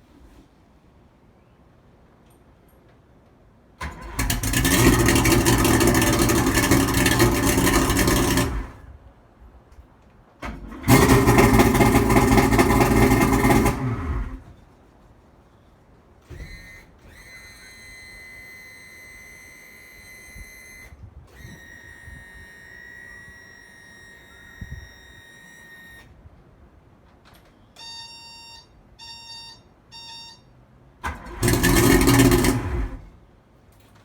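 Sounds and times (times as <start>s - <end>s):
starter cranking engine: 3.8s - 8.9s, 10.4s - 14.5s, 31.0s - 33.2s
warning buzzer beeps: 16.5s - 26.1s, 27.8s - 30.6s.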